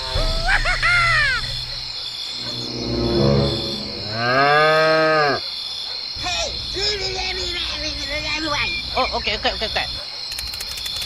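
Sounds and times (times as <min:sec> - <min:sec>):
high insect chirring: 0:01.1 - 0:05.2
cow mooing: 0:04.0 - 0:05.4.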